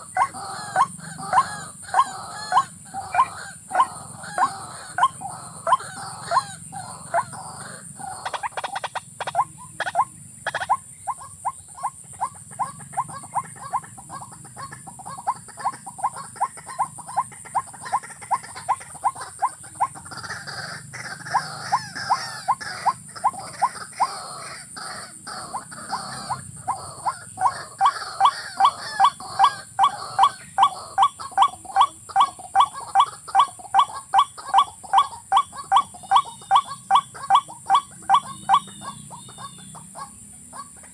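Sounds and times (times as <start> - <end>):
rail bird clucking call: 0.0 - 40.9.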